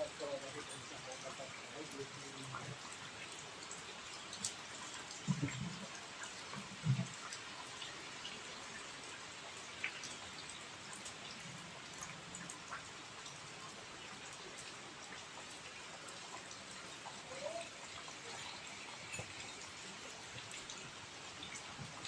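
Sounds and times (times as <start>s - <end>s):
raindrops ticking: 0.0s - 22.0s
steady rain falling: 0.0s - 22.0s.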